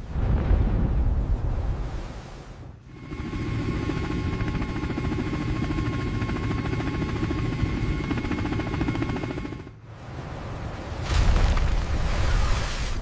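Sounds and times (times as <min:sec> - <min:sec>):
machine drone with chopping pulse: 0:02.9 - 0:09.8.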